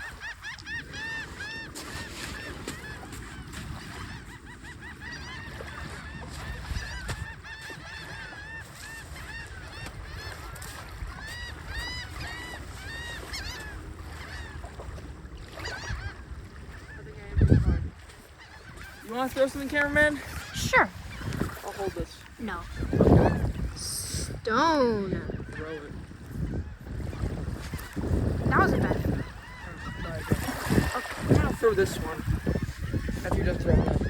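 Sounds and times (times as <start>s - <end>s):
geese honking: 0.0s - 14.6s, 27.7s - 34.0s.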